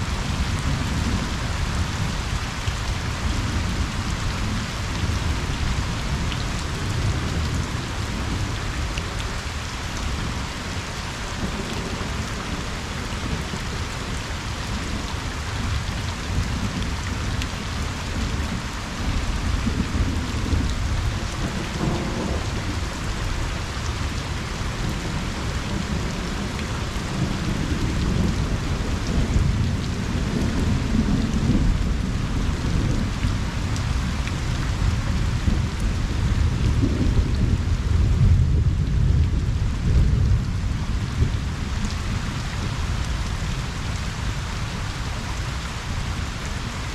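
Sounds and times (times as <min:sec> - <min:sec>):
rain pattering on a pond: 0:00.0 - 0:46.9
distant thunder rumbling: 0:19.5 - 0:23.3.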